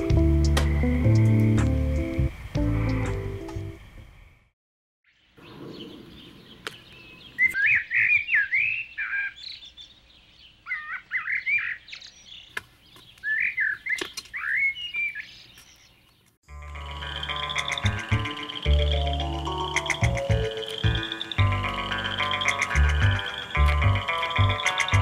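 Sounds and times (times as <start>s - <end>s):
songbird whistled chirps: 5.4s - 10.0s, 10.7s - 16.0s.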